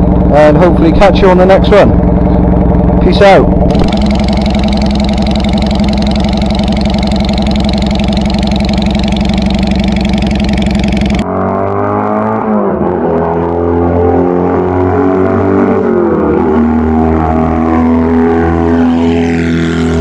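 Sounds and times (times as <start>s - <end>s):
motorcycle engine running: 3.6s - 11.2s
dull tones bending in pitch: 3.7s - 11.2s.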